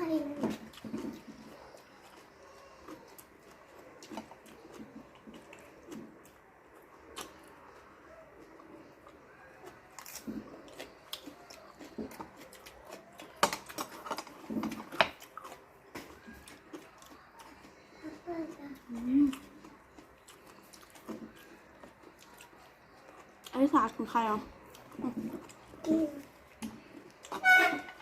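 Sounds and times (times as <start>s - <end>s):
chewing and mouth noises: 0.0s - 27.4s.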